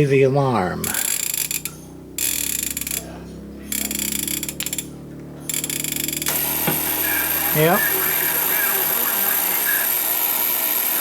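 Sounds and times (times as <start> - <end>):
harsh alarm buzzing: 0.0 - 11.0
radio set low hum: 2.7 - 11.0.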